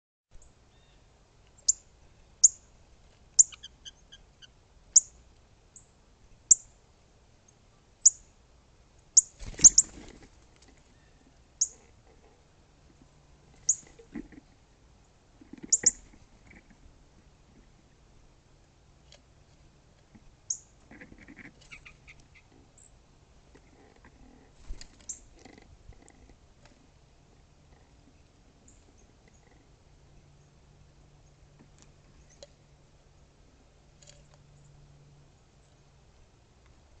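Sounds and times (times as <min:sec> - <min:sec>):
bird chip calls: 0:03.4 - 0:05.2, 0:09.2 - 0:09.9, 0:11.0 - 0:11.8, 0:13.6 - 0:13.9, 0:15.6 - 0:16.1, 0:21.6 - 0:22.9.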